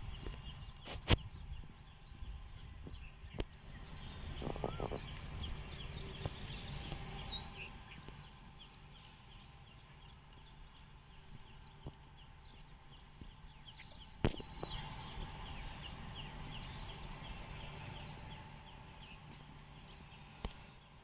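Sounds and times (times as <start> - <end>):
small birds chirping: 0.0 - 21.0
steady low rumble: 0.0 - 21.0
faint clicks: 2.1 - 8.3
rising and falling bird call: 3.8 - 7.8.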